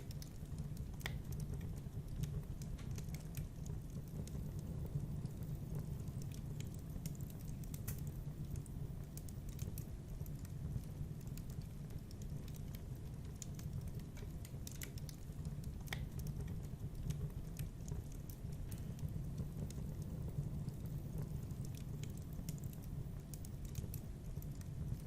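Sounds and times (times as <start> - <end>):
fire crackling and popping: 0.0 - 25.0
fire flames rumbling: 0.0 - 25.0.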